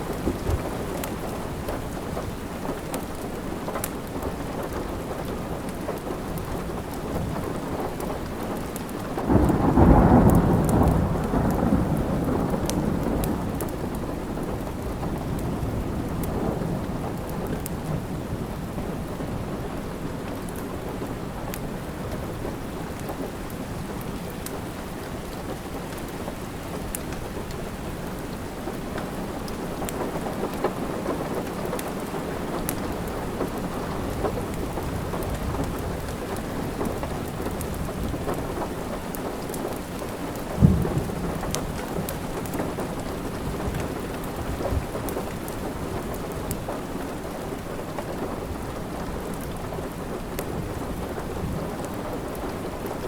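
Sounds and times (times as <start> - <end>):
steady rain: 0.0 - 53.0
low thunder: 9.3 - 18.8, 40.5 - 46.1.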